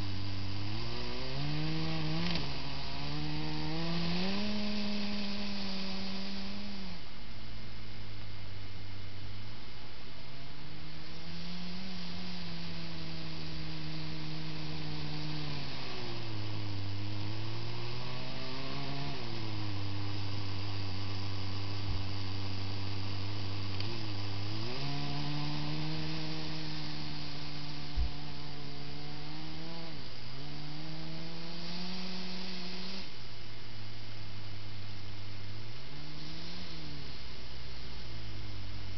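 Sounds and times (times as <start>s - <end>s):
electric motors whining: 0.0s - 7.1s, 10.8s - 33.2s
small clicks: 2.2s - 2.5s.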